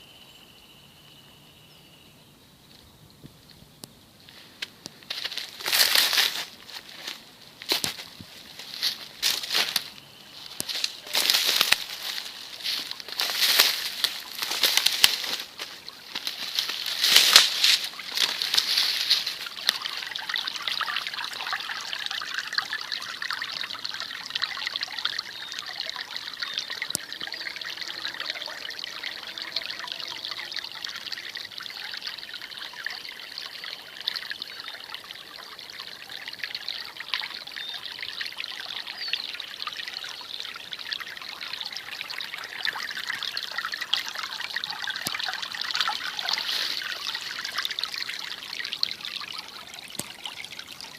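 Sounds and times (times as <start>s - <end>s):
brook trickling and babbling: 0.0s - 50.9s.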